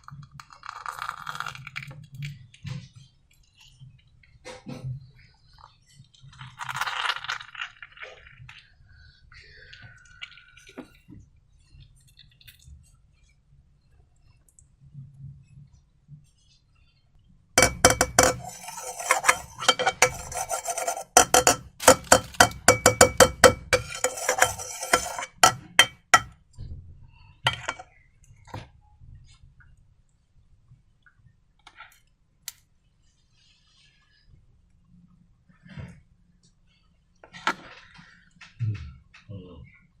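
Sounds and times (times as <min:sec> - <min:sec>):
hard objects clicking and clinking: 0:17.6 - 0:26.3.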